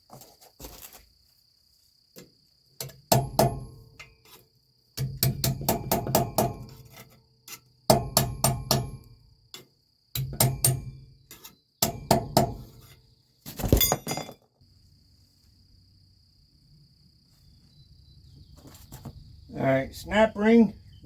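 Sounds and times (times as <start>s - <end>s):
hammer striking steel: 3.1s - 3.8s, 5.0s - 6.7s, 7.9s - 9.1s, 10.2s - 11.0s, 11.8s - 12.6s.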